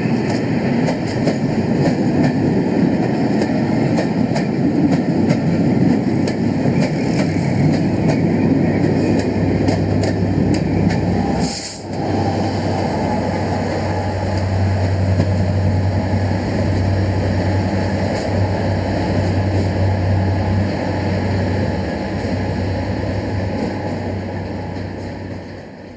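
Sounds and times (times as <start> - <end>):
train rumbling on rails: 0.0 - 25.9.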